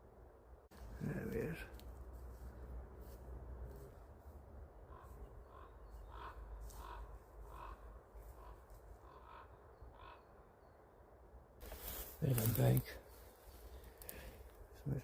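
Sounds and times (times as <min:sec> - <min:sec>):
raven calling faintly: 0:04.8 - 0:10.7.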